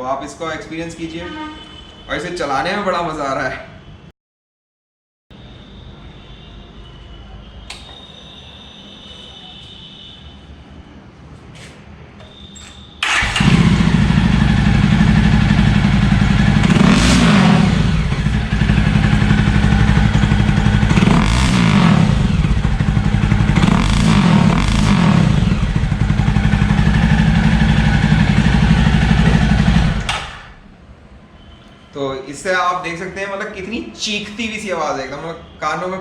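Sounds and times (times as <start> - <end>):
motorcycle engine revving: 13.0 - 30.6.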